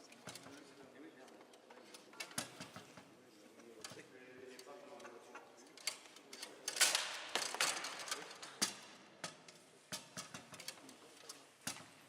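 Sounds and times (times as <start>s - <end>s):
foosball rods rattling: 6.0s - 10.8s.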